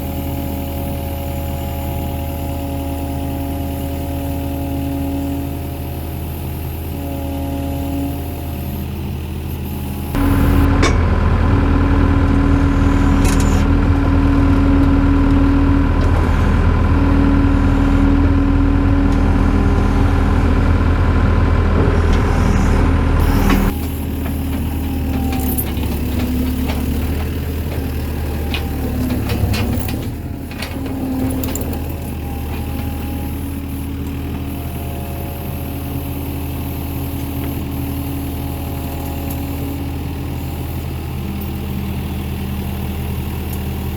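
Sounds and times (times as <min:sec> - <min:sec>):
skid steer engine running: 0:00.0 - 0:43.9.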